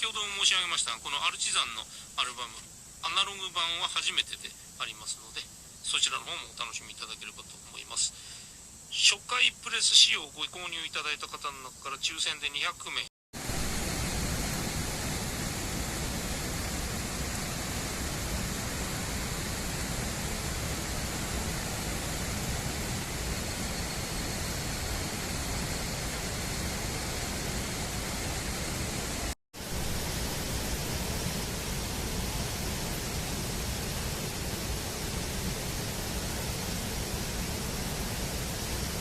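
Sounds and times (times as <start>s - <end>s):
steady rushing noise with low rumble: 13.4s - 39.0s.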